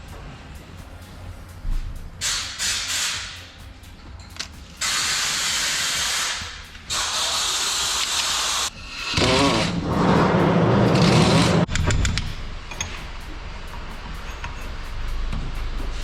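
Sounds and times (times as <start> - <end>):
pressurised nozzle spraying: 2.2 - 3.4, 4.8 - 10.4.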